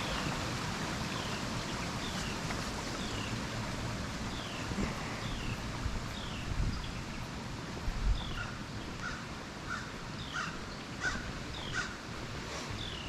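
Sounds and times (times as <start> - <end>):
steady outdoor rumble: 0.0 - 13.0
bird calling: 8.2 - 12.0.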